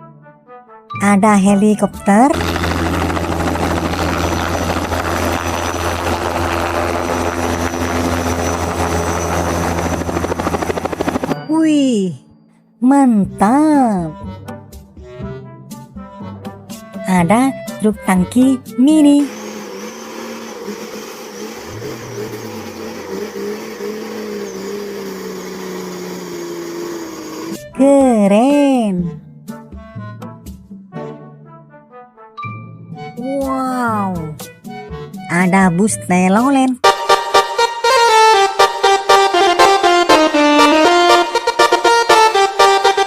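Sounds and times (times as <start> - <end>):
helicopter rotor and engine drone: 1.3 - 12.1, 17.0 - 28.8, 35.3 - 43.0.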